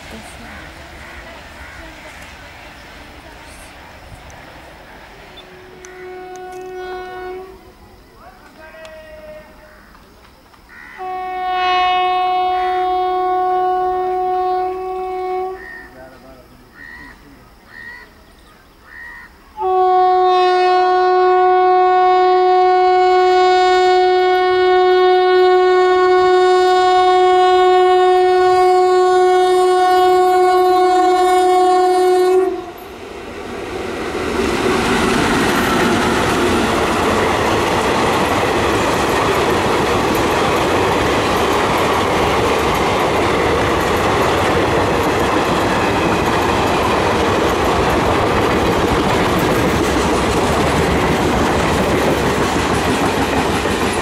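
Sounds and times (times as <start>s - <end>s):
train passing with rail noise: 0.0s - 54.0s
locomotive horn: 5.4s - 7.7s, 11.0s - 16.0s, 19.6s - 32.9s.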